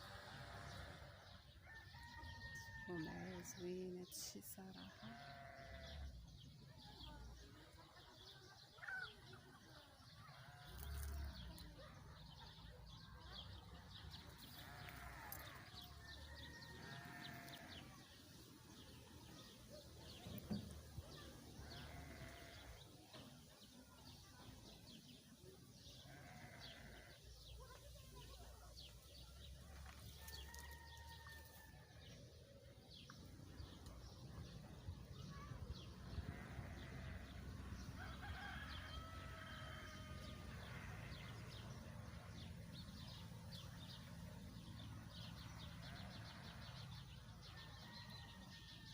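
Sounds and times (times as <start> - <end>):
livestock bleating: 0.0 - 1.3, 4.8 - 6.1, 14.4 - 15.8, 16.8 - 18.0, 21.6 - 22.8, 26.0 - 27.2, 36.1 - 37.4.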